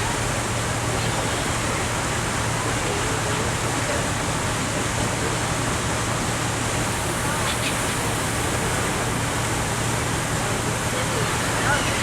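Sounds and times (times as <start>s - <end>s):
ferry engine hum: 0.0s - 12.0s
wind and water rushing: 0.0s - 12.0s.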